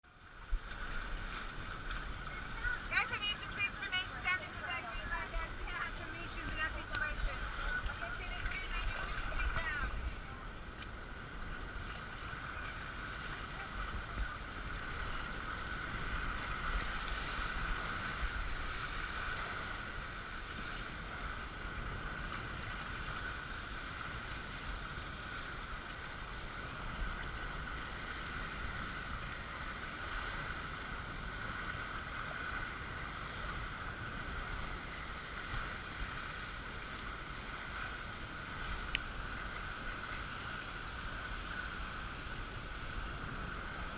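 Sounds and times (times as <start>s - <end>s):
water rushing down raft slide: 0.1s - 43.9s.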